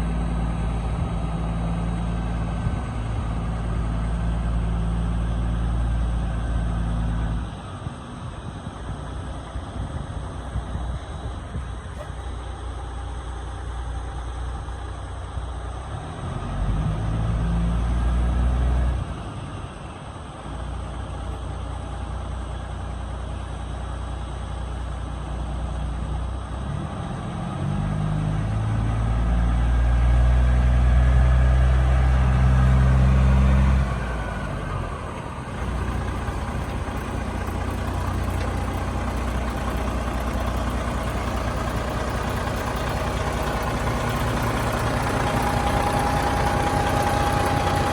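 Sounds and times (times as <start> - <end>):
diesel truck engine idling: 0.0 - 15.8, 31.3 - 47.9
truck engine revving: 26.6 - 47.9.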